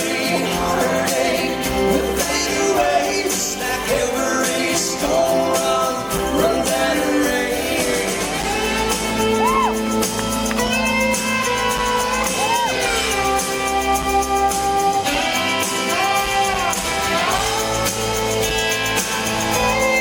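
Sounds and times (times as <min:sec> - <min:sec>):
country band playing: 0:00.0 - 0:20.0
lead guitar with bending notes: 0:05.0 - 0:20.0.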